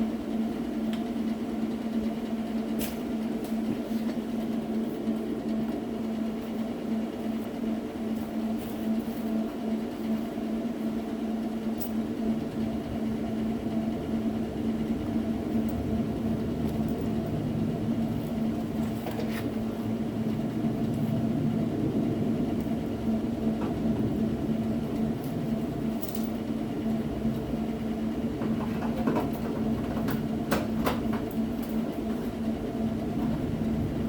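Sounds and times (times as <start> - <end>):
machine hum: 0.0 - 34.0.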